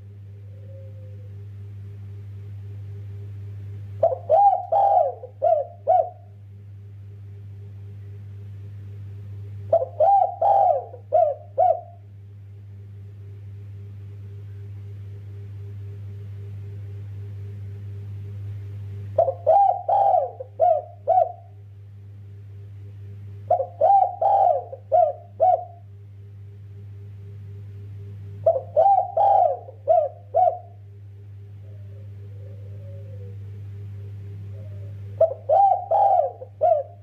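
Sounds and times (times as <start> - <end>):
dove cooing: 0.0 - 1.5, 4.0 - 6.4, 9.7 - 12.1, 19.2 - 21.6, 23.5 - 25.9, 28.4 - 37.0
steady low hum: 0.0 - 37.0.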